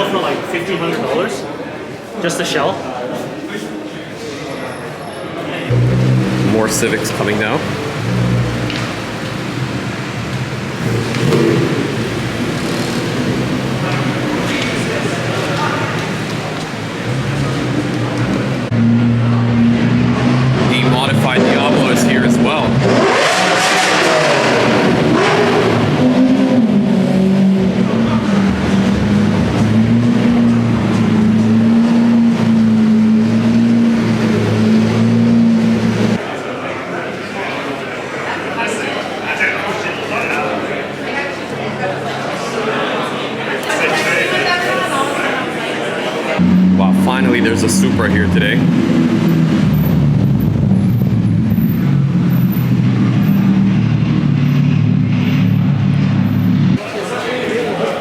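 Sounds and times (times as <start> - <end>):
car engine idling: 5.7 - 23.1, 46.4 - 56.8.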